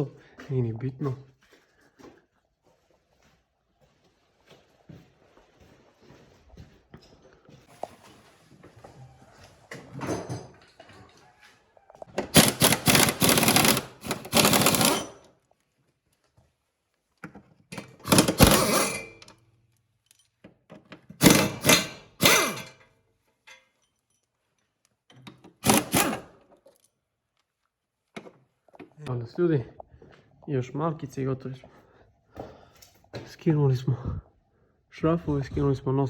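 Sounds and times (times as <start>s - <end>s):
impact wrench rattling: 12.2s - 15.2s, 17.7s - 19.3s, 21.2s - 22.8s, 25.3s - 26.4s.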